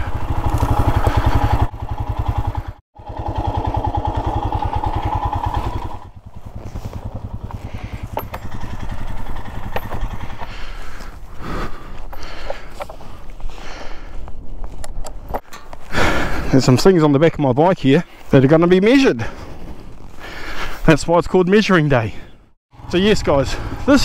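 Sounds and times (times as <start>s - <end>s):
motorcycle engine idling: 0.0s - 14.2s, 22.2s - 24.0s.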